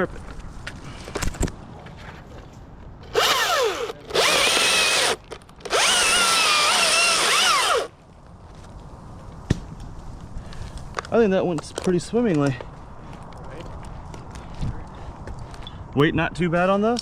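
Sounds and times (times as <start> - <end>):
chainsaw revving: 3.1 - 7.9.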